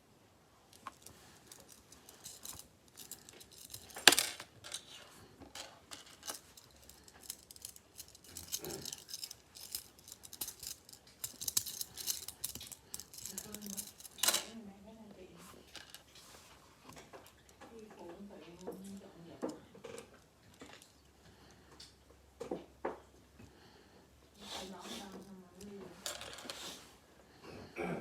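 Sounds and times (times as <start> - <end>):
scratchy clicks and rustles: 0.7 - 14.4.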